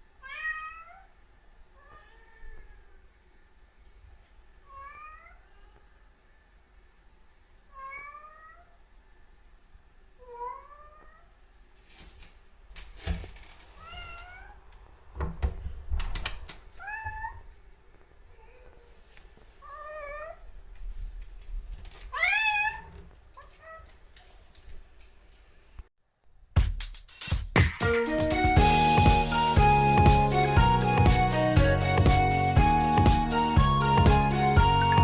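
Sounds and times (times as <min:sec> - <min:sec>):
cat meowing: 0:00.2 - 0:01.1, 0:01.8 - 0:03.0, 0:04.6 - 0:05.9, 0:07.7 - 0:08.8, 0:10.2 - 0:11.4, 0:13.8 - 0:14.6, 0:16.8 - 0:17.6, 0:19.6 - 0:20.5, 0:22.1 - 0:24.0.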